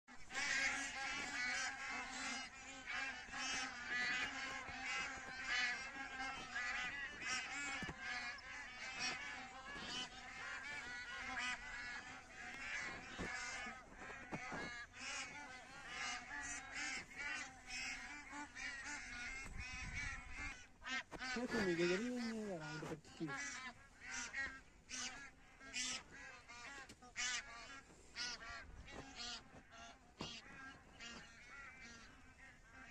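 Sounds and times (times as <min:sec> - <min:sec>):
waterfowl honking calls: 0:00.1 - 0:32.9.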